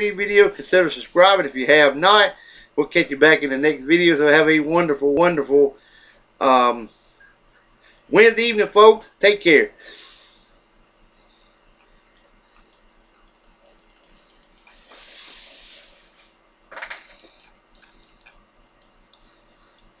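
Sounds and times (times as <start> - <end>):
keyboard and mouse clicking: 11.8 - 14.8, 16.9 - 19.2, 19.8 - 20.0.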